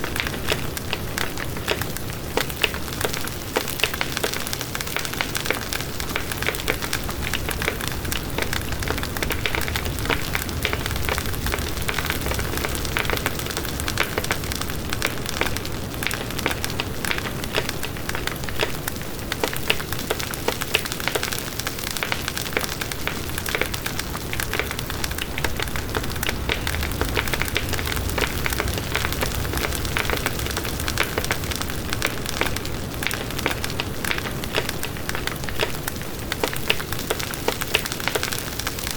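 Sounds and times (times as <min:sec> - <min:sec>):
campfire crackling and popping: 0:00.0 - 0:38.9
steady hiss: 0:20.3 - 0:38.9.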